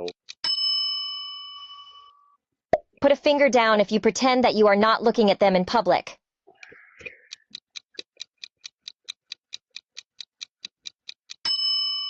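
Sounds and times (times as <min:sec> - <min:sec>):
clock ticking: 0:00.0 - 0:00.5, 0:06.6 - 0:11.6.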